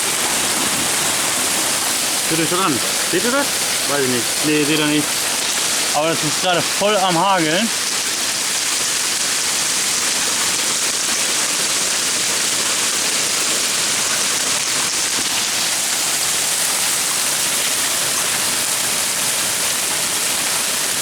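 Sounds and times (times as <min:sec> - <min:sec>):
hail and heavy rain: 0:00.0 - 0:21.0.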